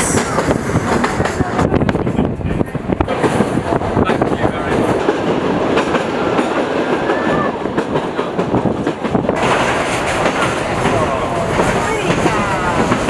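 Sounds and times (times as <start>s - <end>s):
train wheels clattering on rails: 0.0s - 13.0s.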